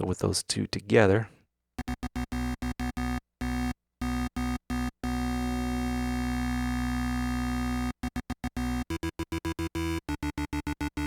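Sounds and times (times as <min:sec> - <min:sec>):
synthesizer lead notes: 0:01.8 - 0:11.0.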